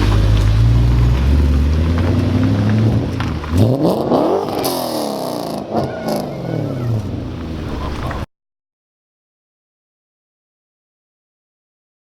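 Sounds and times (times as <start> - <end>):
car engine revving: 0.0 - 8.3.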